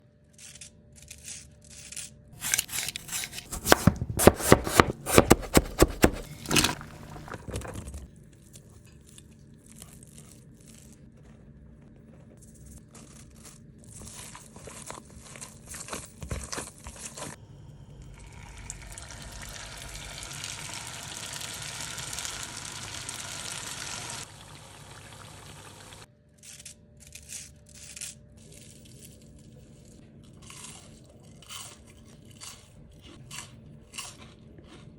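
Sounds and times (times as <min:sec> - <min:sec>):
crinkling while handling: 0:02.4 - 0:08.1, 0:09.1 - 0:17.4
food deep-frying in hot oil: 0:17.9 - 0:26.1.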